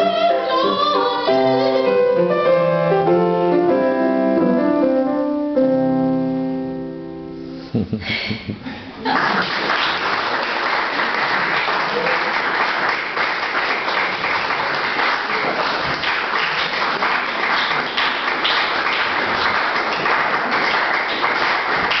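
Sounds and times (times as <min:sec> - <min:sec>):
audience applauding: 0:09.0 - 0:22.0.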